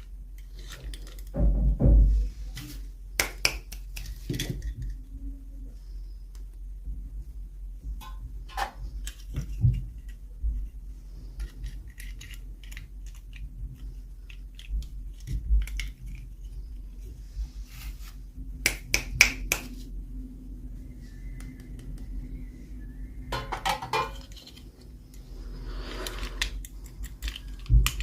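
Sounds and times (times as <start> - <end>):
steady low hum: 0.0 - 28.0
plastic toy pieces clicking: 11.4 - 16.3, 26.1 - 28.0.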